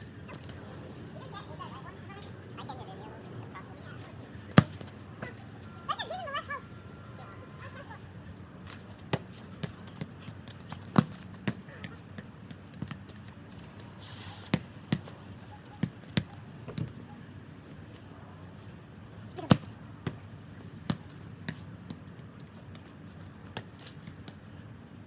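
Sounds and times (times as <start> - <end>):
football kicked and bouncing: 4.4 - 5.4, 8.6 - 13.4, 14.5 - 17.0, 19.4 - 24.6.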